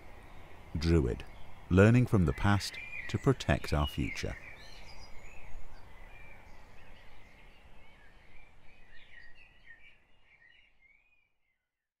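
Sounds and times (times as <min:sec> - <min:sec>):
birds singing: 0:00.0 - 0:11.8.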